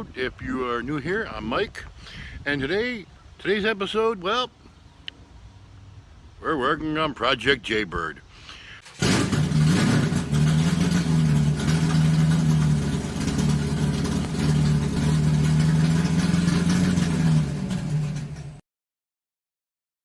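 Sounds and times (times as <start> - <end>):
vehicle engine running: 8.9 - 18.6.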